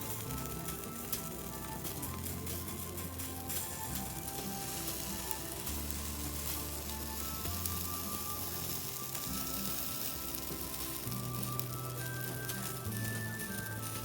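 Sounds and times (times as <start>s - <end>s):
bonfire crackling and popping: 0.0s - 14.0s
music with long low notes: 0.0s - 14.0s.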